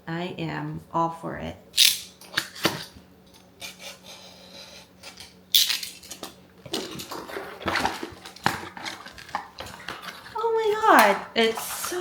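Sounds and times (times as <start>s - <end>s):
packaging rustling and crinkling: 6.7s - 11.0s.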